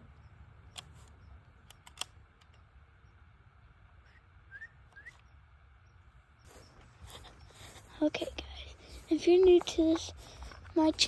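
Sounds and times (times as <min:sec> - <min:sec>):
sharp clicks: 0:00.6 - 0:02.7
small bird chirping: 0:03.9 - 0:11.0.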